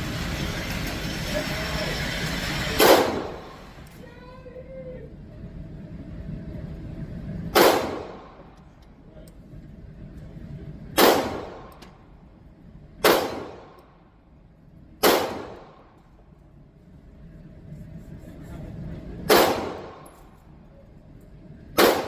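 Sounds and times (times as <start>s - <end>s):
pistol shots: 2.8s - 3.6s, 7.6s - 8.5s, 11.0s - 11.9s, 13.0s - 13.9s, 15.0s - 15.9s, 19.3s - 20.2s, 21.8s - 22.0s.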